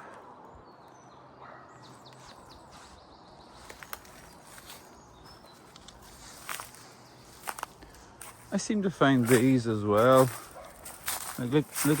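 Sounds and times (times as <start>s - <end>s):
twigs cracking: 3.6s - 8.6s, 9.2s - 12.0s.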